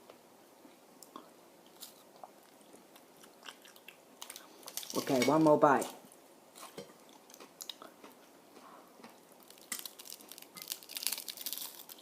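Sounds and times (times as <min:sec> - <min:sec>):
person chewing crunchy food: 0:01.1 - 0:05.1, 0:06.5 - 0:12.0.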